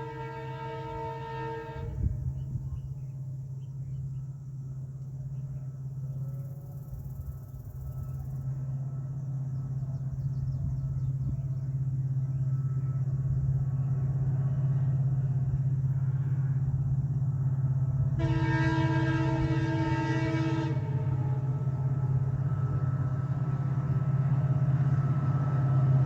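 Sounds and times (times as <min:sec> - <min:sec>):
locomotive horn: 0:00.0 - 0:02.3, 0:18.0 - 0:25.9
diesel locomotive engine drone: 0:00.0 - 0:26.0.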